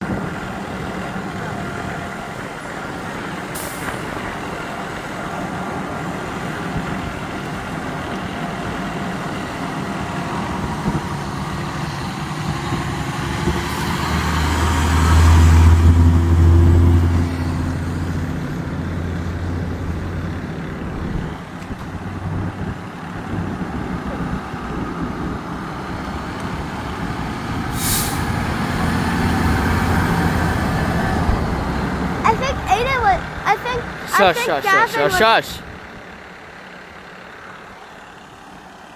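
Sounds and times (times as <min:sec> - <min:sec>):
diesel fire truck engines: 0:00.0 - 0:38.9
air brake hiss: 0:27.7 - 0:28.3.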